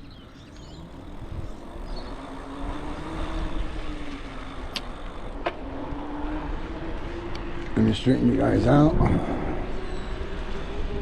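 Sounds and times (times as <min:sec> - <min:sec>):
e-bike motor hum: 0:00.0 - 0:11.0
wind rushing over microphone: 0:00.0 - 0:11.0.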